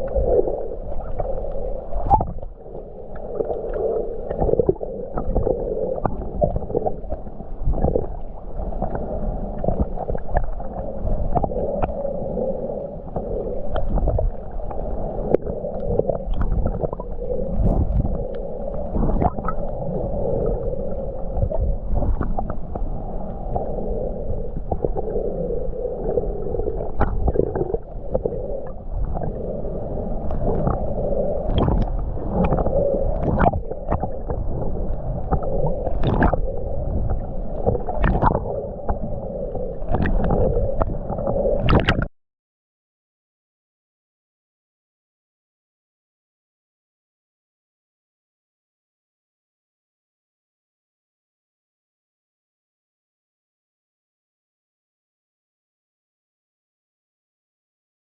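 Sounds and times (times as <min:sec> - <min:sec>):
water gurgling underwater: 0:00.0 - 0:42.1.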